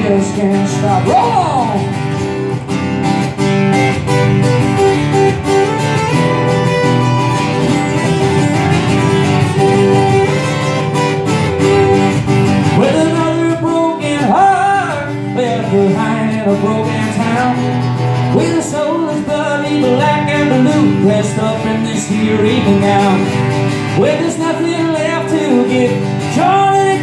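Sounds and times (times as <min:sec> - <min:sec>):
person singing: 0:00.0 - 0:02.0, 0:11.6 - 0:23.4, 0:24.0 - 0:27.0
acoustic guitar strumming: 0:00.0 - 0:27.0.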